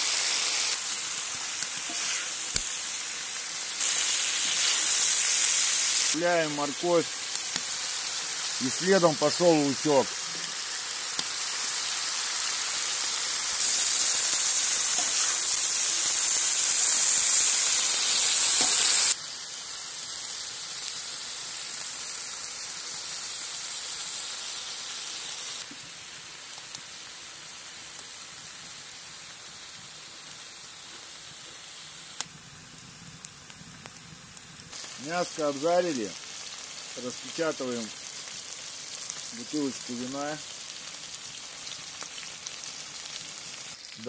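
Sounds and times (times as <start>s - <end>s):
food sizzling in hot oil: 0.0s - 44.0s.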